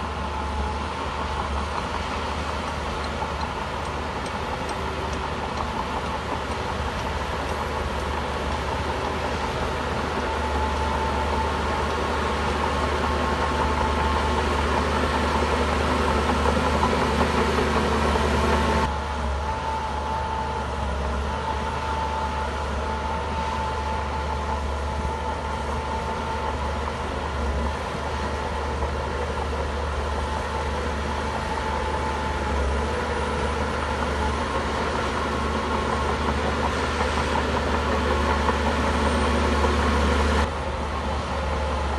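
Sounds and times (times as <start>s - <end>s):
heavy diesel engine running: 0.0s - 41.9s.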